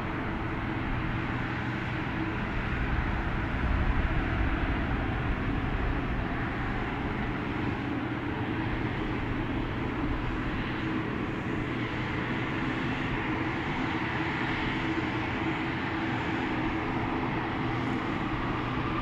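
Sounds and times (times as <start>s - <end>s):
airliner engines humming: 0.0s - 19.0s.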